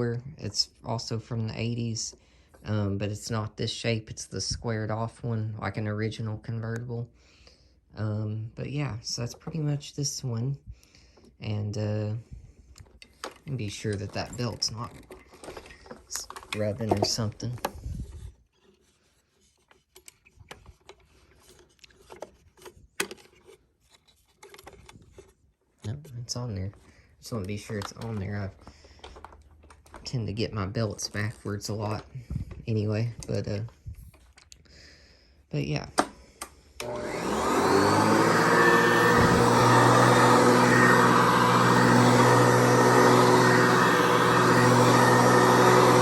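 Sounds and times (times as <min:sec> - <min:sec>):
hands clicking and rubbing a vacuum: 0:12.7 - 0:26.4, 0:27.3 - 0:30.1
vacuum motor whining: 0:36.8 - 0:46.0.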